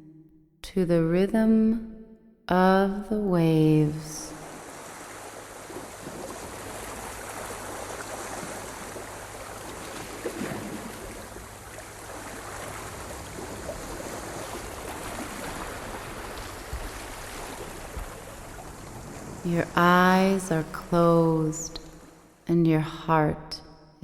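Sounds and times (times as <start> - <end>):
ocean waves washing in: 3.9 - 22.5.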